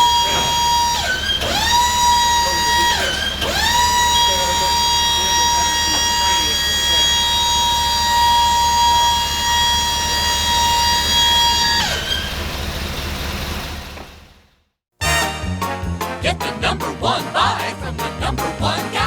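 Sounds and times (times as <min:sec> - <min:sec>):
loud high-pitched tone: 0:00.0 - 0:12.6
low vehicle rumble: 0:00.0 - 0:14.5.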